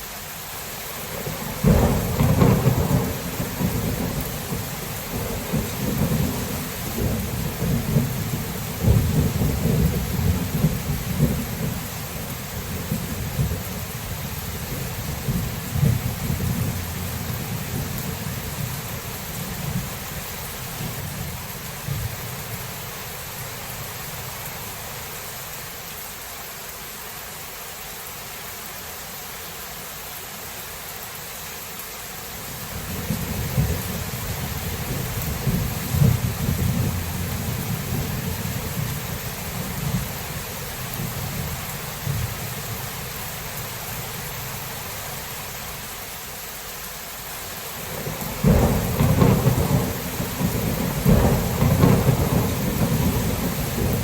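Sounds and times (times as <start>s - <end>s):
steady rain hiss: 0.0s - 54.0s
rolling thunder: 1.1s - 22.9s, 32.7s - 43.0s, 47.8s - 54.0s.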